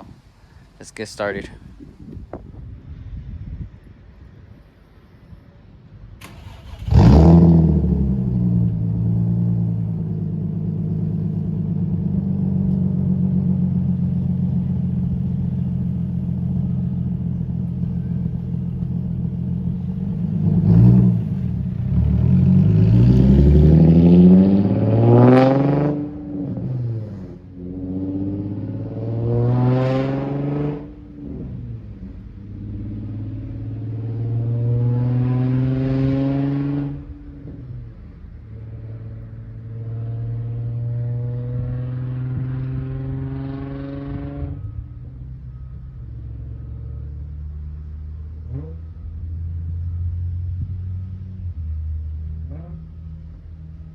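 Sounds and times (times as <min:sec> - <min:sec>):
car engine idling and revving: 0:05.9 - 0:53.9.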